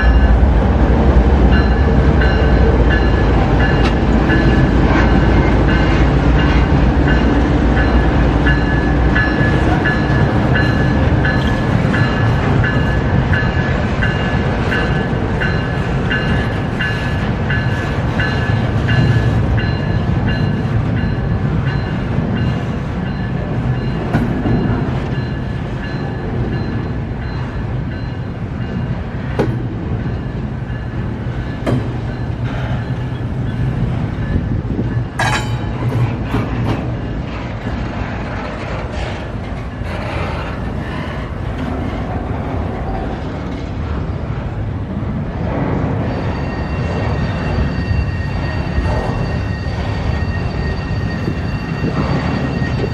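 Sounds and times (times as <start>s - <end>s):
train wheels rumbling on rail: 0.0s - 52.9s
high ringing wheel squeal: 46.0s - 52.9s.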